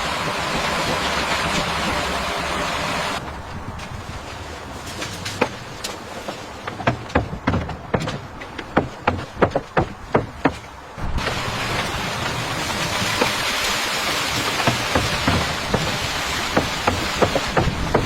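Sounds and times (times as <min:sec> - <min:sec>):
steady rushing noise: 0:00.0 - 0:18.0
construction knocks and taps: 0:05.0 - 0:12.4, 0:14.5 - 0:18.0.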